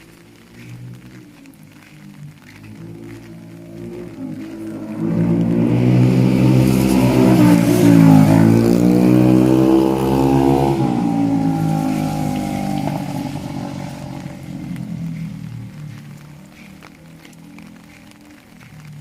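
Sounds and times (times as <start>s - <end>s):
vehicle engine passing by: 0.0s - 18.8s.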